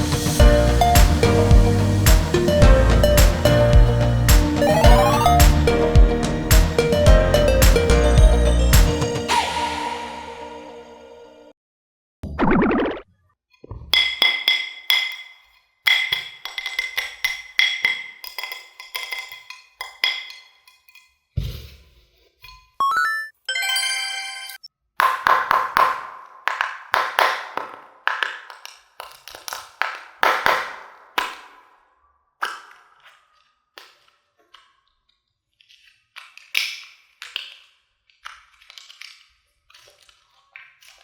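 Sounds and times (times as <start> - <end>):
held chime-like tone: 4.6 - 5.8, 22.9 - 24.6
short rising whistle: 9.3 - 11.0.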